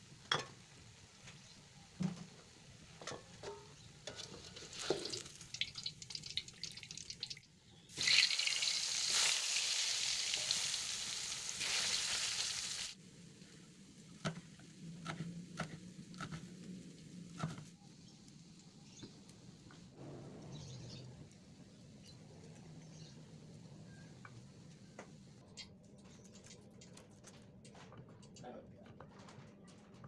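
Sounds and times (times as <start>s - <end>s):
metal spatula scraping a wok: 4.0s - 5.1s
food frying in hot oil: 4.1s - 13.0s
loud sizzle: 4.3s - 14.1s.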